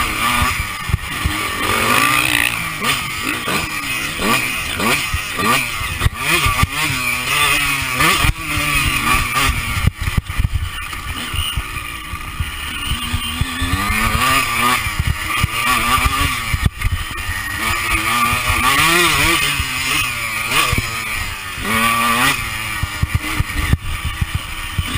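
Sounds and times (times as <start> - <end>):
motocross engine revving: 0.0 - 24.9.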